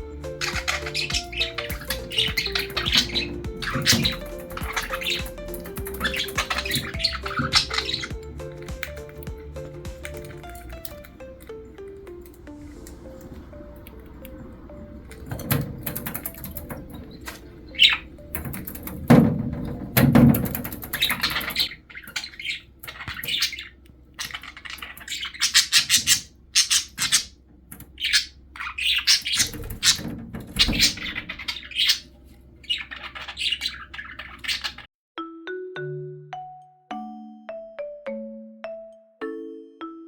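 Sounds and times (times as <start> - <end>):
budgerigars chattering: 0.0 - 12.2, 14.2 - 19.2, 20.2 - 34.9.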